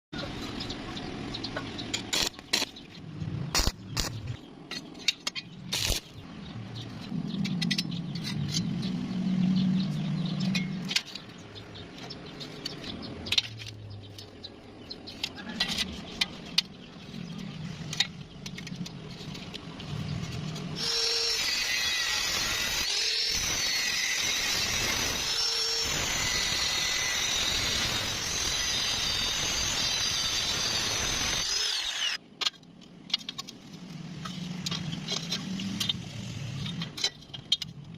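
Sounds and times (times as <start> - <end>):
power tool running: 20.8 - 32.2.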